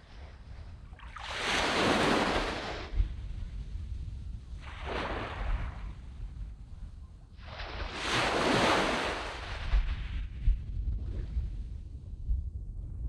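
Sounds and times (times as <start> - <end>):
waves breaking on a sand beach: 0.0 - 3.2, 4.6 - 6.2, 6.8 - 10.4.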